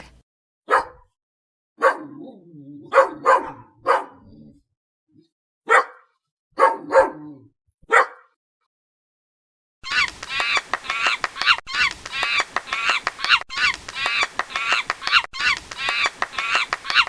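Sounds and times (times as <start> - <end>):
dog barking: 0.7 - 1.2, 1.8 - 4.5, 5.7 - 8.4.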